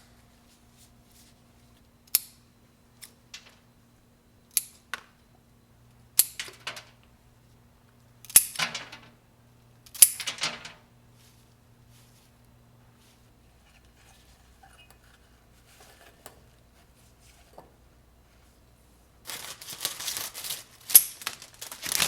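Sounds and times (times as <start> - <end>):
faint steady hum: 0.0 - 22.0
crackly clicks and rustles: 3.0 - 3.7, 11.4 - 17.8, 19.2 - 22.0.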